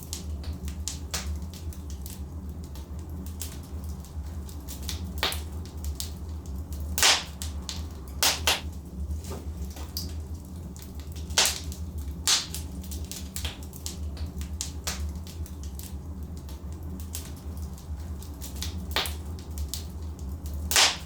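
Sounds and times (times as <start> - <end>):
logs crackling and popping in fire: 0.0 - 21.0
low rumble of fire: 0.0 - 21.0
sharp wood pops: 20.7 - 21.0.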